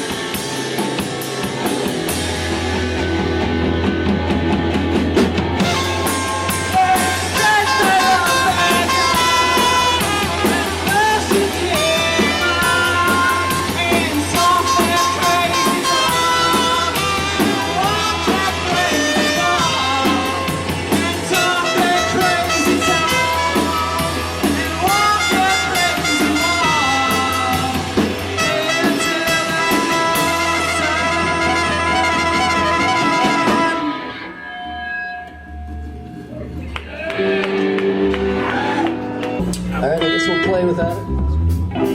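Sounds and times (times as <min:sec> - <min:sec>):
live band playing: 0:00.0 - 0:41.9.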